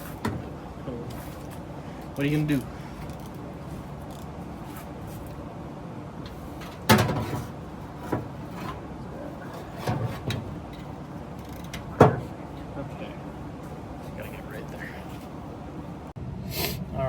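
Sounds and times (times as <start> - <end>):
steady background noise: 0.0 - 17.0
hand tools knocking and clanking: 6.6 - 8.8, 9.4 - 12.4.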